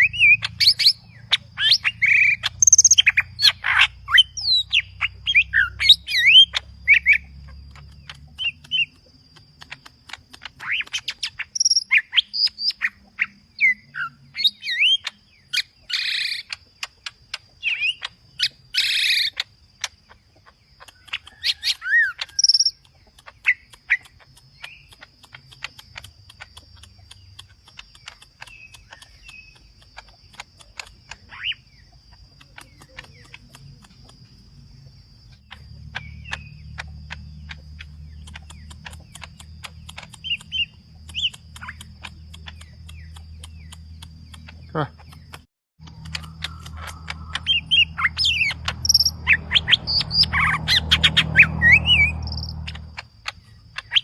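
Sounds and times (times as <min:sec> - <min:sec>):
bird singing chirps and whistles: 0:00.0 - 0:09.0, 0:09.6 - 0:20.0, 0:35.5 - 0:54.0
sharp bird ticks: 0:00.0 - 0:54.0.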